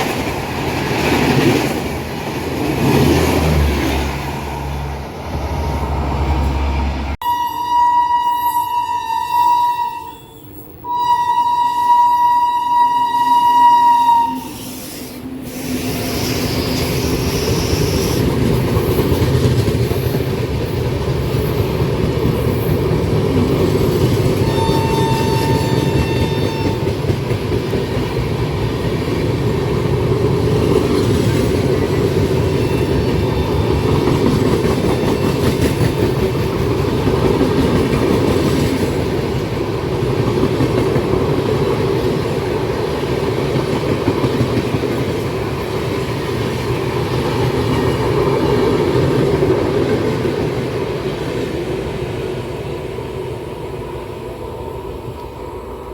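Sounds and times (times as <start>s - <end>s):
train rumbling past: 0.0s - 55.9s
train horn: 6.5s - 15.8s, 24.4s - 27.0s.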